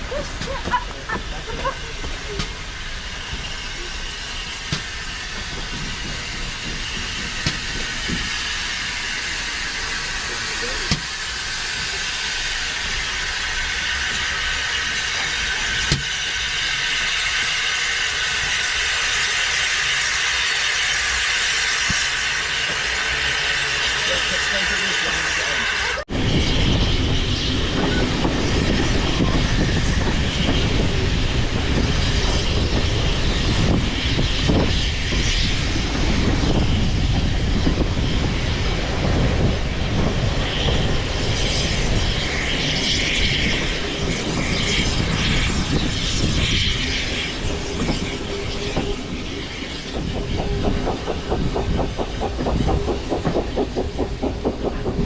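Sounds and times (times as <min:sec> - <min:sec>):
train rumbling on rails: 0:00.0 - 0:55.0
high wheel squeal: 0:40.4 - 0:55.0.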